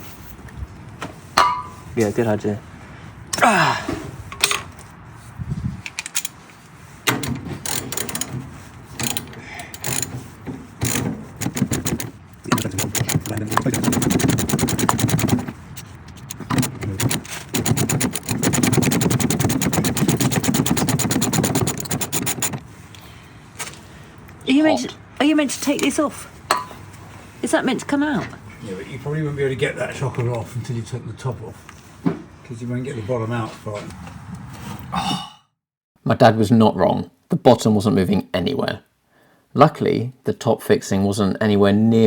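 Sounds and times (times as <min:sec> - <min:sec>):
ratchet wrench clicking: 0:07.1 - 0:08.4, 0:09.0 - 0:22.7
knocks: 0:09.0 - 0:15.6, 0:16.3 - 0:22.6.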